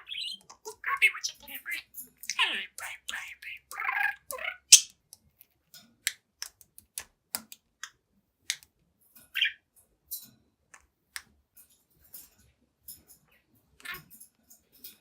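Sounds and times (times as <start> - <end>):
budgerigar chirp: 0.0 - 4.9
budgerigar clicking: 0.0 - 5.0.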